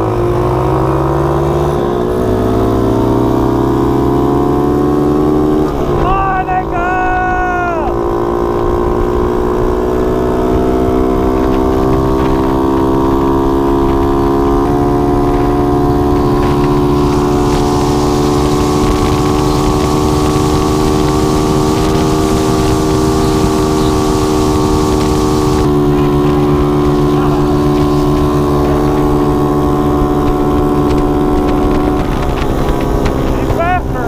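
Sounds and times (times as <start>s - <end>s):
mini bike engine running: 10.3s - 34.0s
rushing noise: 14.6s - 34.0s.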